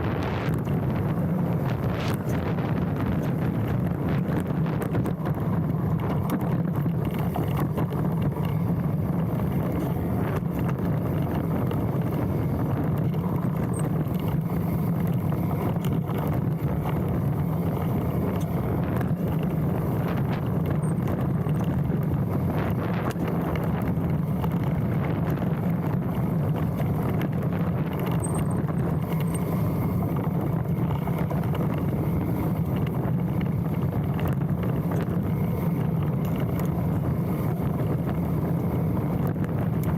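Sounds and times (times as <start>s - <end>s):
bike tyre noise: 0.0s - 39.9s
wind on microphone: 0.0s - 39.9s
disc brakes squeaking: 28.1s - 29.8s.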